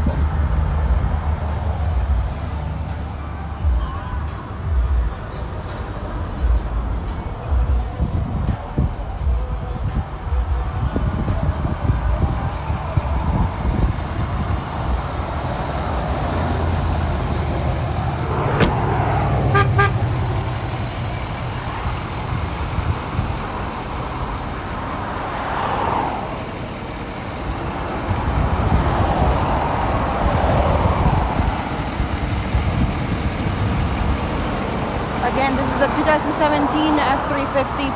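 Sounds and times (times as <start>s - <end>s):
vehicle rumble: 0.0s - 37.9s
short horn toots: 19.4s - 20.2s.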